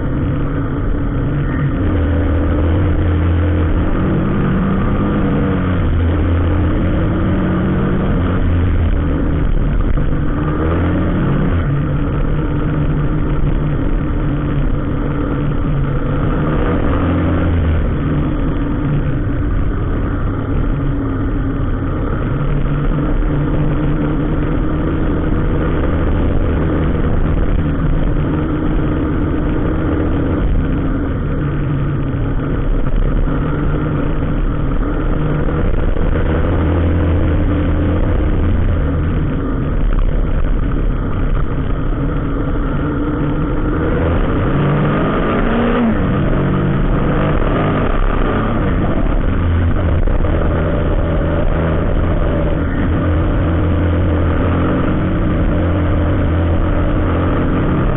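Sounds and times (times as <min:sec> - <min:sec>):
traffic engines running: 0:00.0 - 0:57.9
engine revving up: 0:01.3 - 0:13.5, 0:16.0 - 0:19.1, 0:42.4 - 0:57.9.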